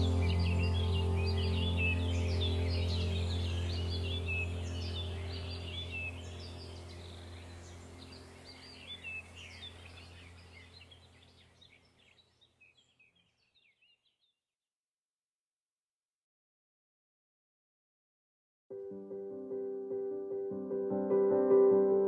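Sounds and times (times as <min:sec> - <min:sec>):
steady low hum: 0:00.0 - 0:11.4
small birds chirping: 0:00.0 - 0:14.4.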